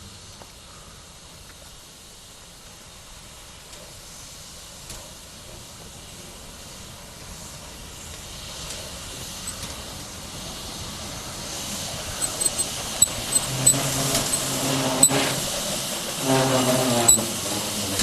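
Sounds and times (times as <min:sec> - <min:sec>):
steam train hissing: 0:00.0 - 0:18.0
sharp clicks: 0:12.2 - 0:14.5.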